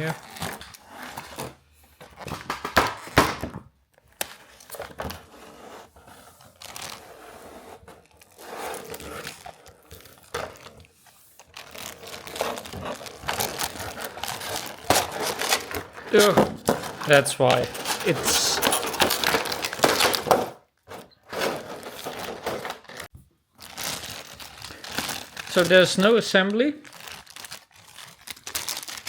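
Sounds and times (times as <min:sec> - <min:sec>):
plastic packaging crinkling and tearing: 0:00.0 - 0:01.6, 0:06.4 - 0:07.2, 0:07.8 - 0:20.4, 0:21.4 - 0:29.0.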